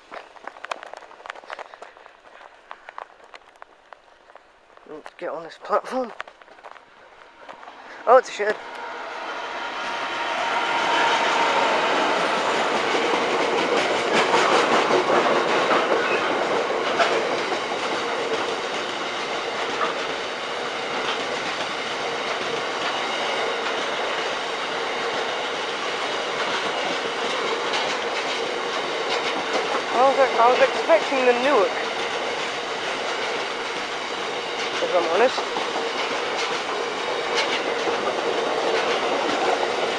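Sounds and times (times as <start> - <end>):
wheels clattering over rail joints: 0.0 - 8.9, 11.2 - 39.9
freight train passing: 0.0 - 39.9.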